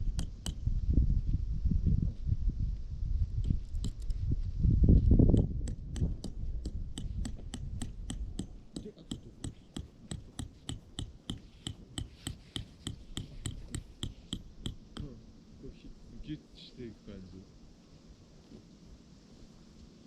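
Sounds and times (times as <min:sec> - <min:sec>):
tent peg being hammered: 0:00.0 - 0:00.7, 0:05.3 - 0:15.2.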